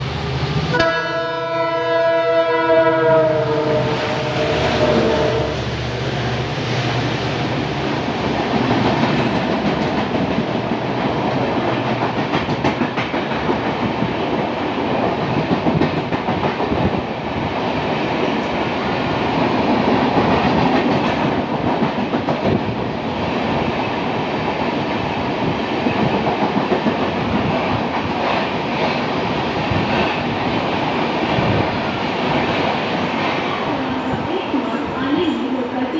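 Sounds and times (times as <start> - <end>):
passenger train rumbling past: 0.0 - 35.9
train horn: 0.7 - 5.6.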